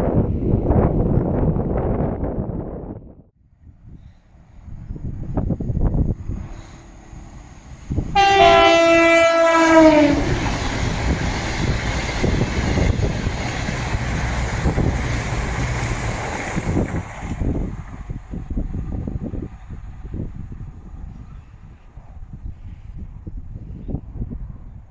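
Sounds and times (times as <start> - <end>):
train wheels rumbling on rail: 3.8 - 24.9
two-tone train horn: 7.9 - 10.7.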